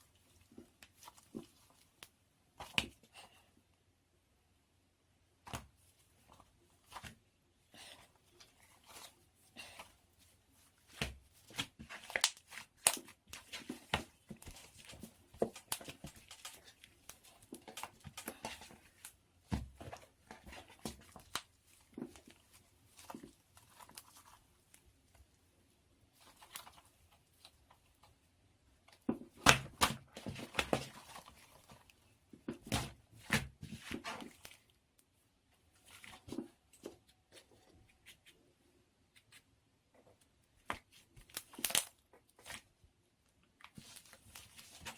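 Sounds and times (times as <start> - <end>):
sticky slime crackles and pops: 41.2 - 42.0.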